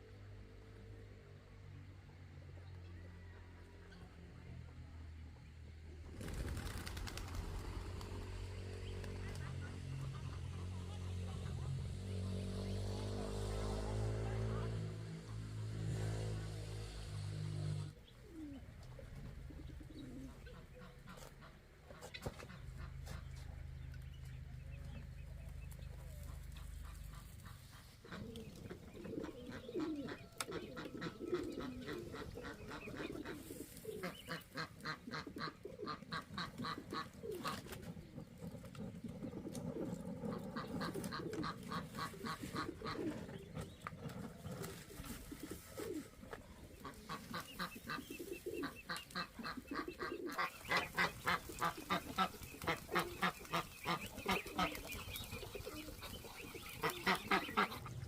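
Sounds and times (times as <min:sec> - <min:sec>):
birds calling: 0:16.8 - 0:58.0.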